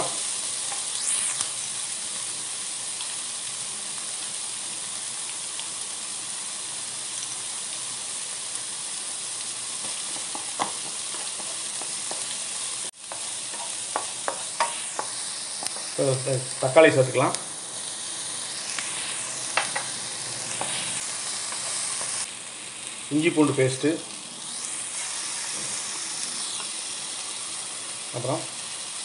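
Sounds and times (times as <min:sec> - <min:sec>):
vegetables sizzling in oil: 0:00.0 - 0:29.0
wooden spatula knocking: 0:10.1 - 0:12.2.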